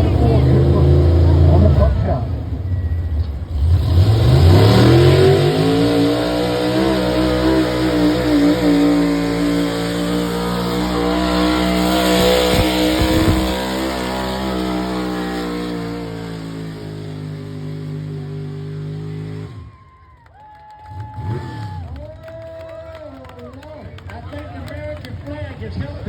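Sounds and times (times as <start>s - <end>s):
engine revving under load: 0.0s - 19.7s.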